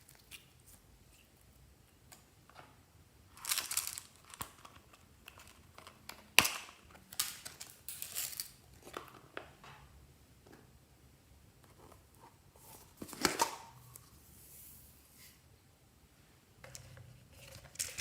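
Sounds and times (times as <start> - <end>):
crinkling and crunching handling noise: 0.0 - 9.6, 11.6 - 14.3, 16.6 - 18.0.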